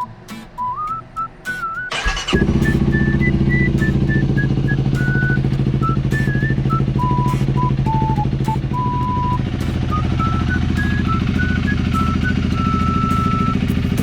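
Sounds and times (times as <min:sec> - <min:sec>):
motorcycle engine starting and idling: 0:01.8 - 0:14.0.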